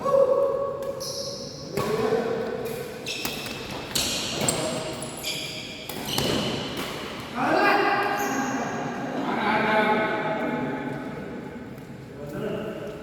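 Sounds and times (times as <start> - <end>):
shoes squeaking on court floor: 0.9 - 2.0, 2.6 - 6.9, 8.1 - 8.8.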